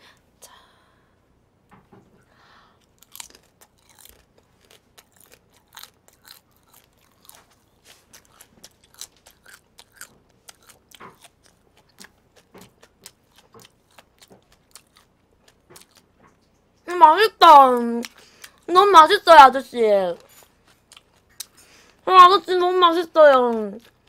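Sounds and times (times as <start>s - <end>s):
crunchy chewing: 2.8s - 16.8s, 20.2s - 22.0s, 23.8s - 24.0s.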